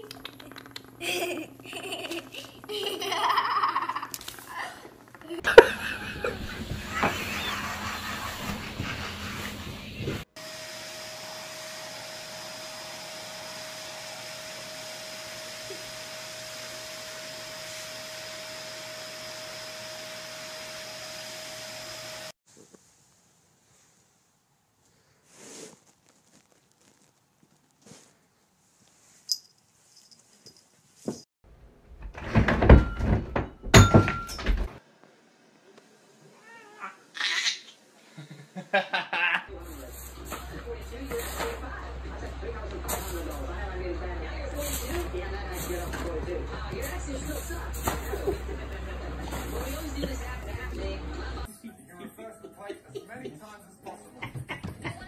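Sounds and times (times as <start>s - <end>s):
vacuum cleaner whine: 5.5s - 22.4s
thuds and clatter against shelf: 32.0s - 34.8s.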